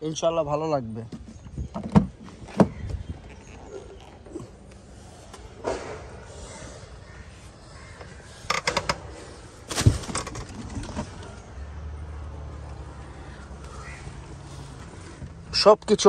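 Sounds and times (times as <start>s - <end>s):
crows cawing: 5.6s - 9.6s, 12.8s - 15.4s
dull thump: 9.7s - 11.1s.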